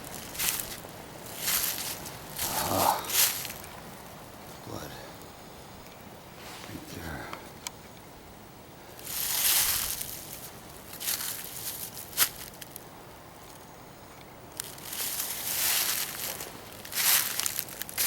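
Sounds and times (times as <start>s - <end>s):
footsteps crunching through dry leaves: 0.0s - 3.9s, 9.0s - 12.8s, 14.5s - 18.0s.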